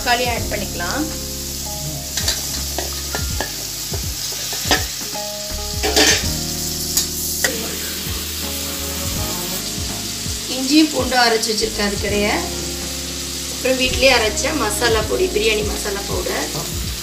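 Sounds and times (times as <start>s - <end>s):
vegetables sizzling in oil: 0.0s - 17.0s
spatula scraping and clinking pot: 5.8s - 6.2s.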